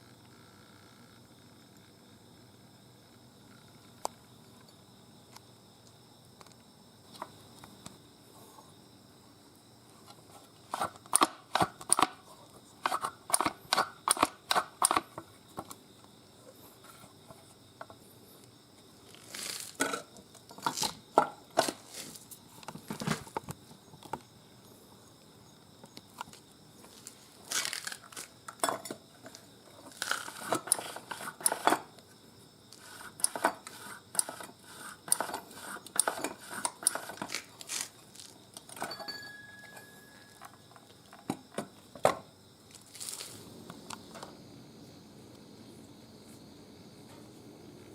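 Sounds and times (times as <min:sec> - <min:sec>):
rustling: 0:19.0 - 0:19.8, 0:42.7 - 0:43.5.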